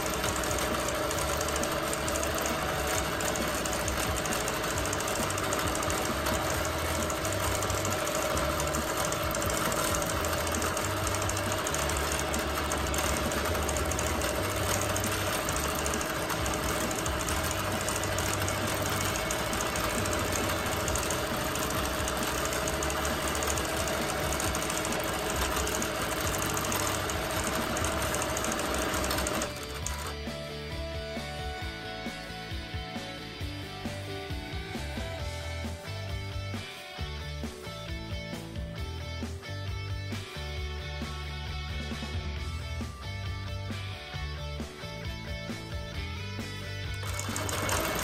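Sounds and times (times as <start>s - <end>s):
quilting machine stitching: 0.0s - 30.3s, 46.9s - 48.0s
music: 0.0s - 48.0s.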